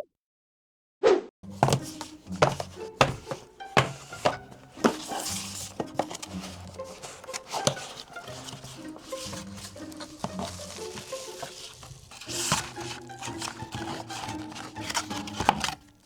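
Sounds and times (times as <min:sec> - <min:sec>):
background music with held tones: 0:01.4 - 0:16.0.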